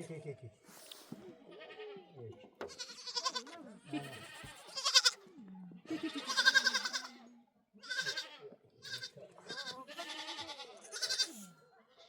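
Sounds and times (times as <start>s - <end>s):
goats bleating: 2.6s - 5.2s, 5.9s - 7.2s, 7.8s - 11.4s.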